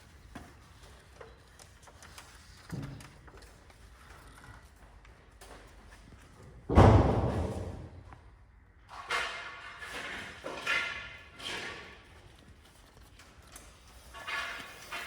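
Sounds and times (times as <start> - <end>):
heavy echoing thud: 6.7 - 7.9
faint scraping noises: 8.9 - 15.0.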